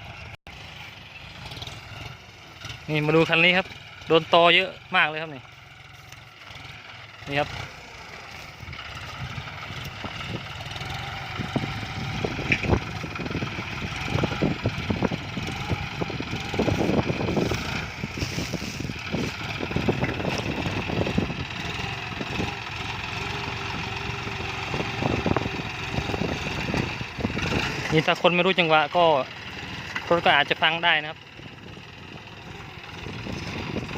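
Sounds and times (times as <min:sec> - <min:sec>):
tractor diesel engine running: 0:00.0 - 0:33.9
plough knocking and clattering: 0:12.3 - 0:15.6, 0:16.6 - 0:22.6.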